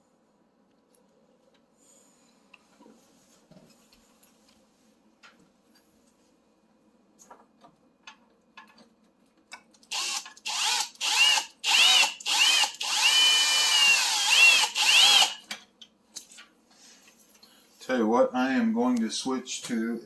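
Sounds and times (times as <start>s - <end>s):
power drill driving screws: 9.9s - 15.4s.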